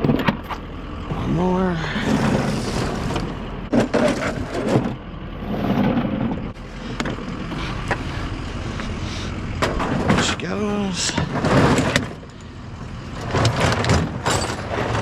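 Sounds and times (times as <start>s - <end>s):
steady low hum: 0.0s - 15.0s
scrap metal clanking: 1.8s - 8.0s, 8.8s - 12.4s, 13.2s - 15.0s.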